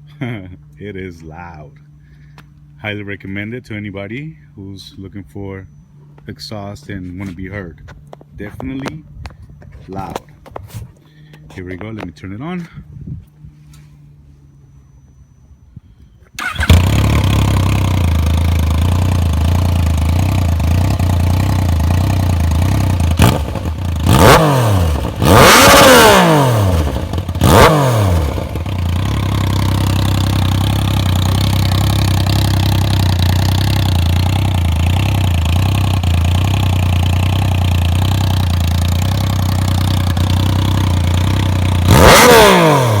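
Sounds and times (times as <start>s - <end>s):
motorcycle engine idling and revving: 16.4s - 43.0s.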